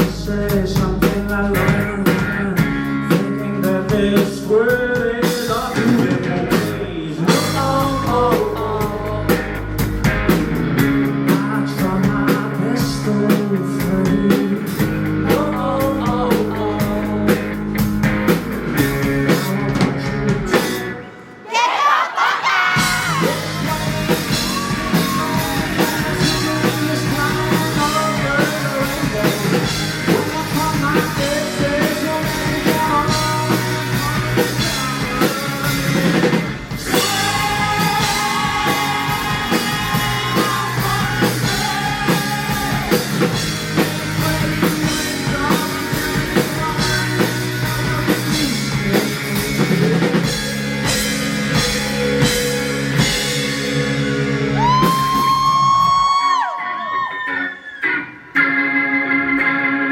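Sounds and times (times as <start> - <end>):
live rock band playing: 0.0 - 21.4, 22.7 - 59.9.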